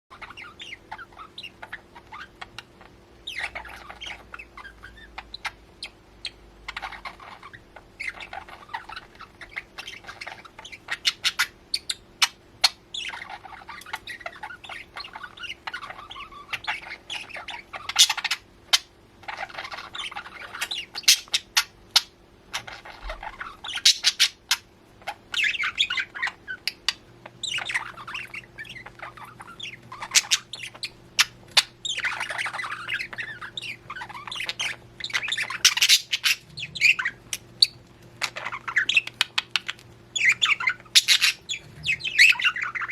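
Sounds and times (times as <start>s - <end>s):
faint steady hum: 0.1s - 42.9s
pet birds chattering: 0.1s - 42.9s.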